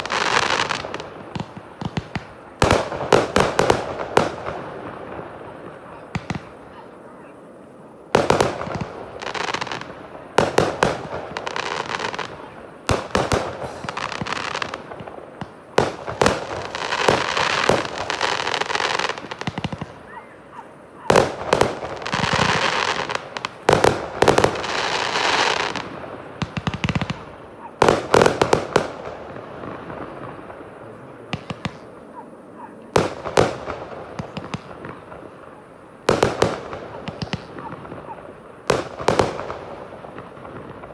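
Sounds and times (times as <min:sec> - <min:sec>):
firework shells bursting: 0:00.0 - 0:06.6, 0:08.2 - 0:30.6
firework crackling: 0:00.0 - 0:40.9.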